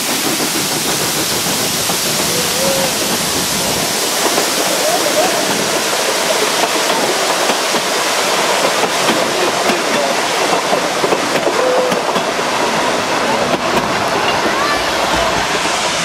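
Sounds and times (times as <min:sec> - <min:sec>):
train coaches rumbling and rattling: 0:00.0 - 0:16.0.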